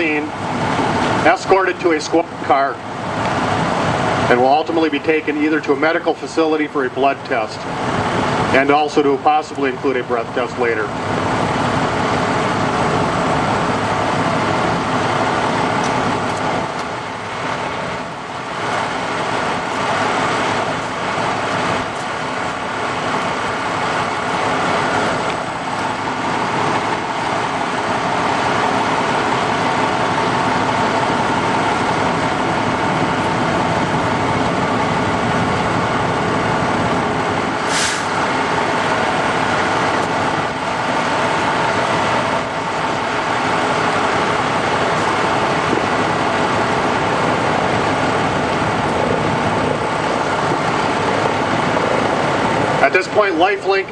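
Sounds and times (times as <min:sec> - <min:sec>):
vehicle engines idling: 0:00.0 - 0:53.9
brief hiss: 0:37.6 - 0:38.2.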